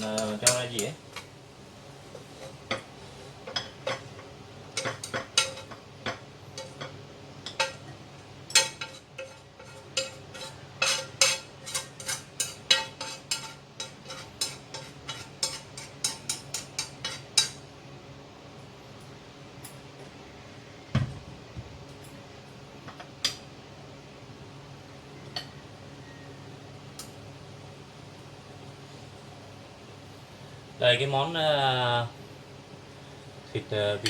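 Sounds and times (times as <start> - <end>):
metal utensil clinking on pan: 0.0 - 1.3, 2.4 - 7.9, 8.5 - 17.6.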